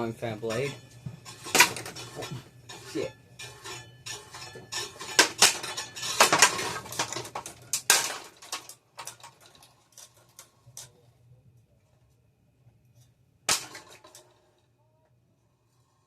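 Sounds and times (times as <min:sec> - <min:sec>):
fan blades clattering: 0:00.0 - 0:11.0, 0:13.5 - 0:14.6.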